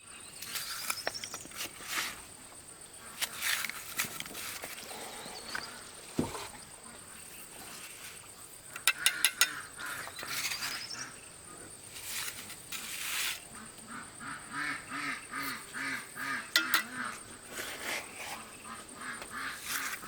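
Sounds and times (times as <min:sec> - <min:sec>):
ducks quacking: 0:13.6 - 0:17.2.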